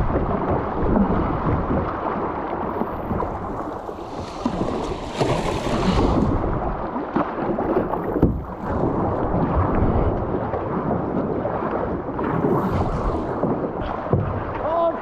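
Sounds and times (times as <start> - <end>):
water rushing and splashing: 0.0 - 15.0.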